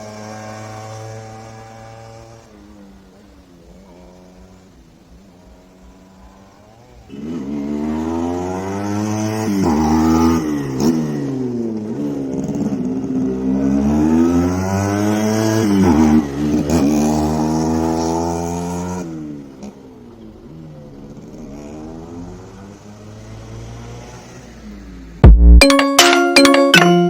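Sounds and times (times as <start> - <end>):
two-stroke motorcycle engine revving: 0.0 - 2.5, 5.8 - 19.7.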